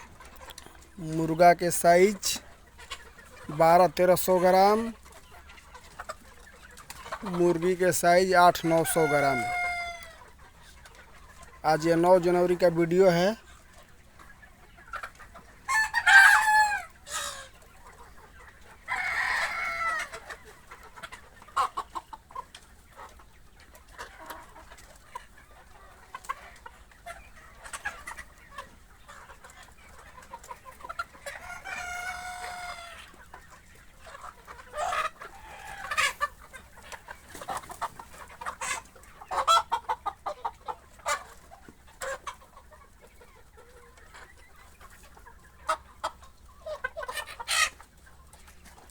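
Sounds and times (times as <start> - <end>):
hens clucking: 0.0 - 48.9
roosters crowing: 7.3 - 10.2, 15.7 - 17.0, 18.9 - 20.2, 31.4 - 33.0.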